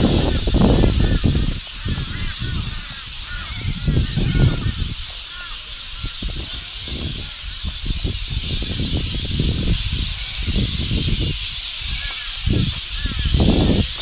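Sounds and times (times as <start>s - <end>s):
short bird calls: 0.0s - 14.0s
wind buffeting microphone: 0.0s - 14.0s.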